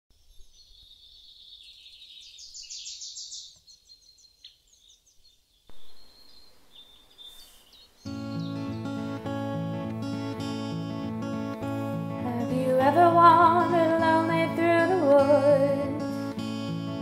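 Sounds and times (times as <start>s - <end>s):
small birds chirping: 0.1s - 9.6s
faint steady hiss: 4.4s - 17.0s.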